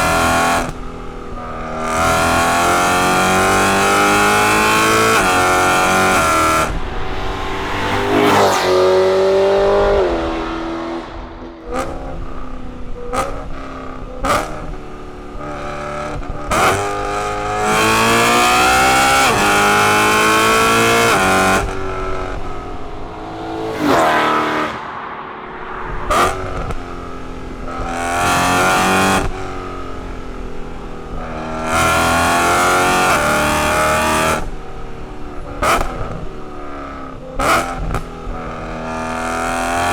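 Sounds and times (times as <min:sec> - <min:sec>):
car engine revving hard: 0:00.0 - 0:34.6, 0:37.4 - 0:39.9
exhaust cracks: 0:04.5 - 0:13.6.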